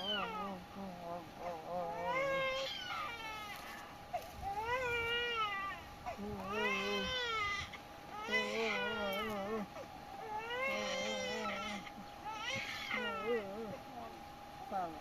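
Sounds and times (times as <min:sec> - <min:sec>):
infant crying: 0:04.4 - 0:09.6, 0:10.2 - 0:13.6.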